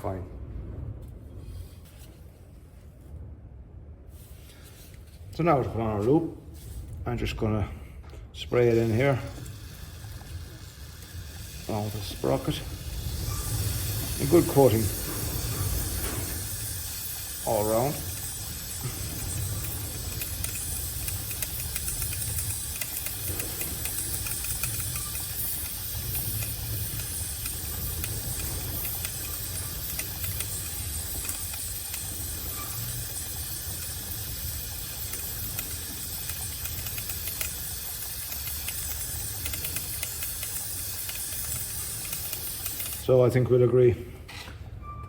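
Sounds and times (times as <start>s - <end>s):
aerosol spray hissing: 8.7s - 43.1s.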